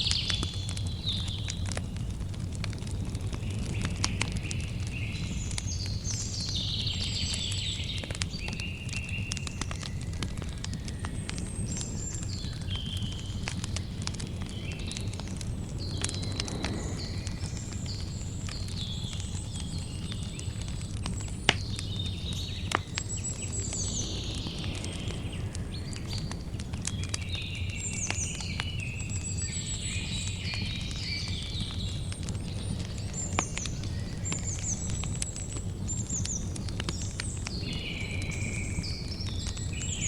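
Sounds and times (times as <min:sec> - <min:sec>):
campfire crackling: 0:00.0 - 0:40.0
fire pops: 0:00.0 - 0:40.0
birds chirping and trilling: 0:11.8 - 0:19.8, 0:21.7 - 0:31.9
low steady rumble: 0:14.0 - 0:18.9.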